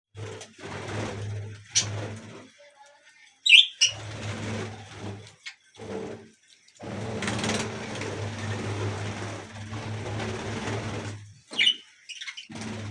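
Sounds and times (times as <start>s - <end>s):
budgerigars chirping: 3.4s - 4.0s, 11.5s - 12.5s.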